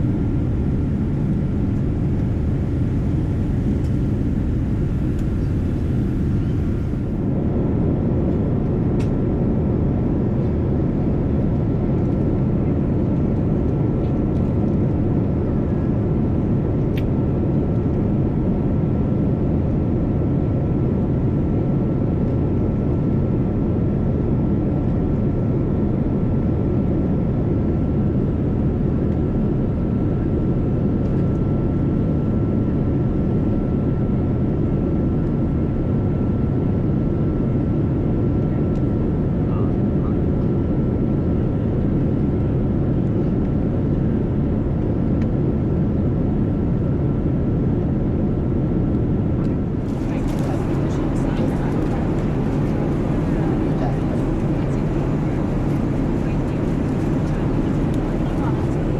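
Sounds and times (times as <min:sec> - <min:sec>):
thin steady whine: 0:00.0 - 0:07.4, 0:49.6 - 0:58.9
airliner cabin engine rumble: 0:00.0 - 0:58.9.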